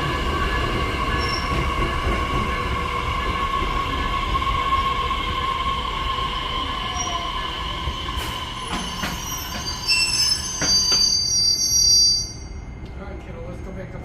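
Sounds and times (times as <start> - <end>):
train wheels squealing: 0.4 - 4.3, 6.6 - 12.8.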